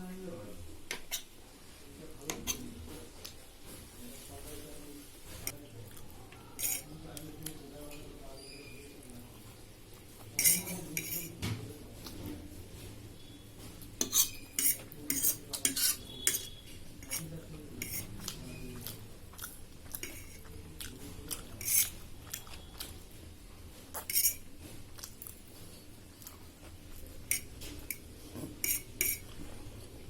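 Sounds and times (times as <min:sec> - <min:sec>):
cutlery clinking on a plate: 0:06.6 - 0:06.9, 0:10.4 - 0:11.4, 0:14.0 - 0:18.1, 0:20.0 - 0:20.5, 0:21.6 - 0:22.0, 0:24.0 - 0:24.5, 0:27.3 - 0:29.4.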